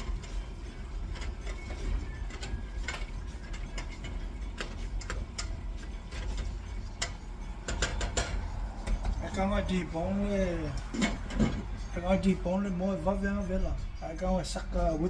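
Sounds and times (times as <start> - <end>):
kitchen utensils clicking: 0.0 - 9.7
steady low hum: 0.0 - 15.0.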